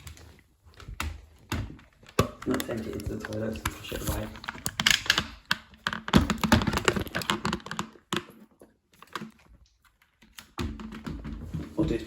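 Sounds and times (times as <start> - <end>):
plastic clicking and rattling: 0.0 - 11.5.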